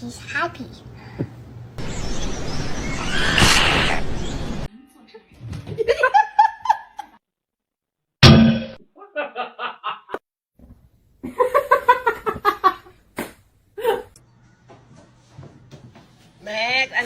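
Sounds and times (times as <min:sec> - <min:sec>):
sudden loud noise: 0:01.8 - 0:04.7
person laughing: 0:13.8 - 0:14.1.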